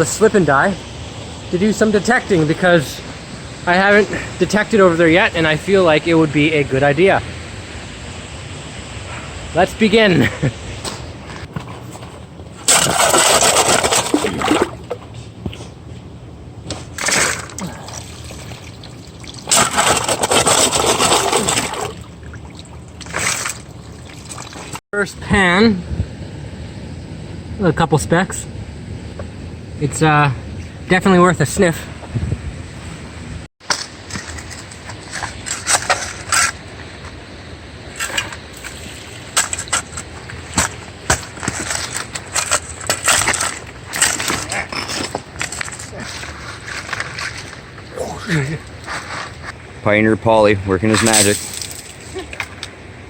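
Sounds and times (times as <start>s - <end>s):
rocks and gravel knocking and scraping: 10.8s - 15.8s, 16.6s - 22.1s, 33.6s - 37.2s, 37.9s - 49.6s, 50.8s - 52.8s
water sloshing in a pan: 16.9s - 24.8s.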